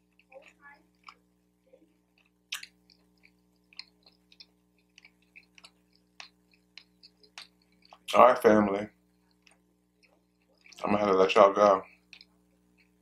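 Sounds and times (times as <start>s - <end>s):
man chewing with mouth closed: 0.0s - 8.1s, 8.9s - 10.8s, 11.8s - 13.0s
wet mouth smacks and clicks: 2.1s - 8.2s.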